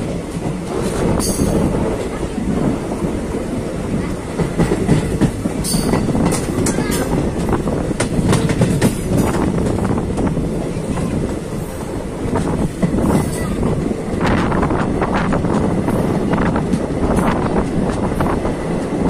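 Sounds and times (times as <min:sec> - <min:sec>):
train rumbling along track: 0:00.0 - 0:19.0
wheels clattering over track: 0:04.0 - 0:11.6.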